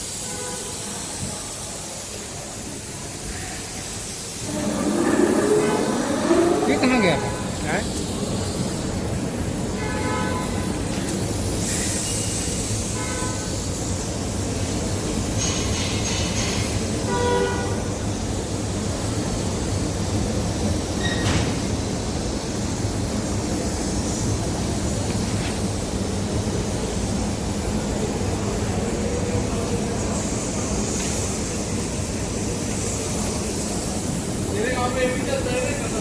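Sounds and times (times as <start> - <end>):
loud mechanical rumble: 4.3 - 8.1
short high-pitched tones: 4.4 - 7.6.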